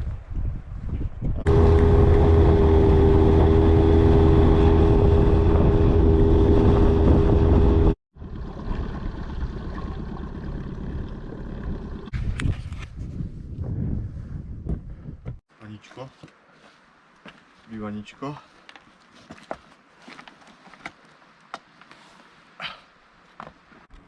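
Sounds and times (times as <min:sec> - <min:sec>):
boat motor running: 0:01.5 - 0:12.1.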